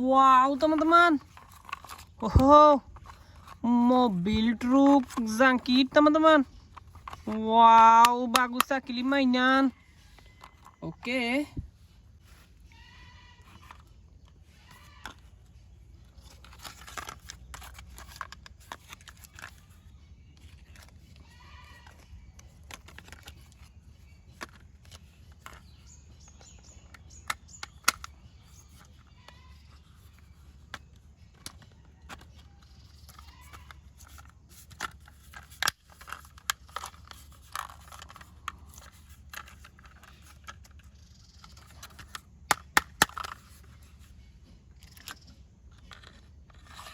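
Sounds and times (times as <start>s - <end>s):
plastic toy parts clicking: 0.3s - 12.7s, 13.4s - 46.9s.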